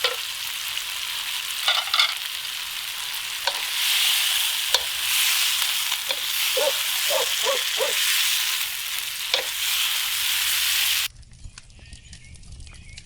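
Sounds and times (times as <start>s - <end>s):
food sizzling in a pot: 0.0s - 11.1s
utensil clicking against pot: 3.4s - 8.0s, 9.3s - 9.7s.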